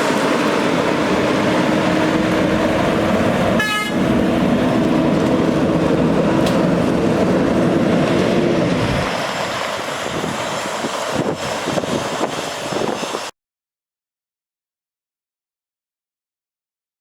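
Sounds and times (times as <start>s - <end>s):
diesel truck engine droning: 0.0s - 13.3s
high-pitched toot: 3.6s - 4.0s.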